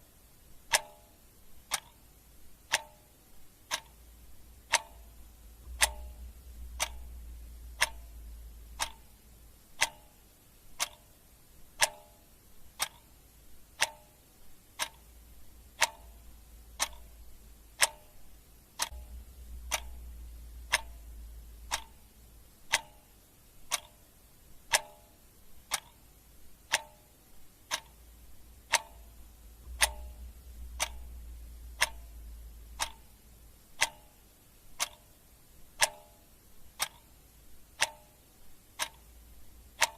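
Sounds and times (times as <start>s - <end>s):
clock ticking: 0.0s - 39.9s
faint low hum: 0.0s - 39.9s.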